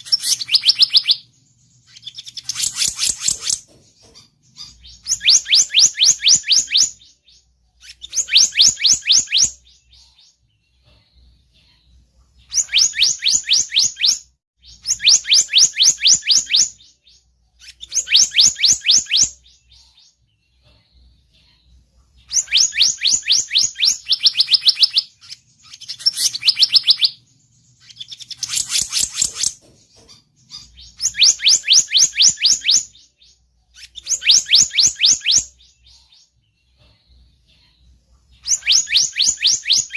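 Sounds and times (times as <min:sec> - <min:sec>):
bird trilling: 0:00.0 - 0:01.3, 0:22.3 - 0:27.2.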